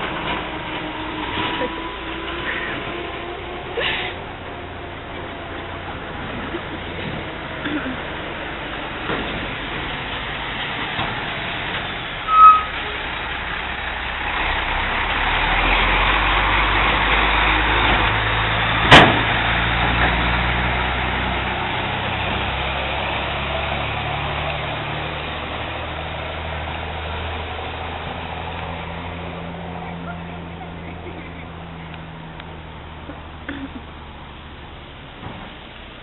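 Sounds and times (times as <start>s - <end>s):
vehicle engine running: 0.0s - 36.0s
high engine blip: 12.2s - 13.0s.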